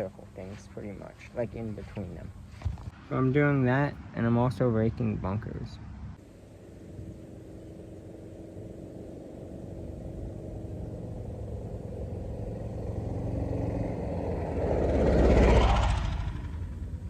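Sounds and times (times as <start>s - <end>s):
vehicle engine approaching: 6.2s - 17.0s.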